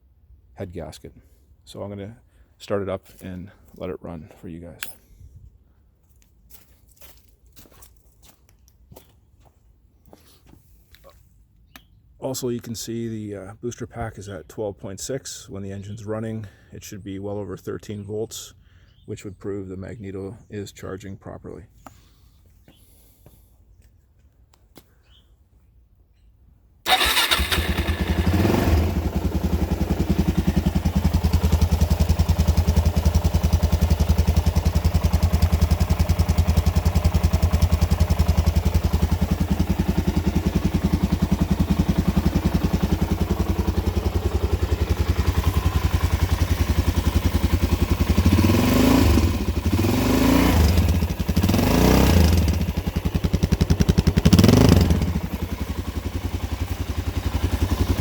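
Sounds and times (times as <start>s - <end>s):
motorcycle engine idling and revving: 26.9s - 58.0s.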